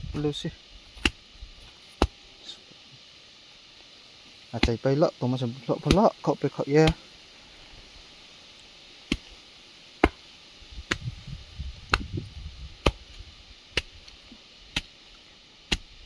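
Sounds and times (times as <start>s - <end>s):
faint low rumbling: 0.0s - 3.1s, 10.3s - 14.4s.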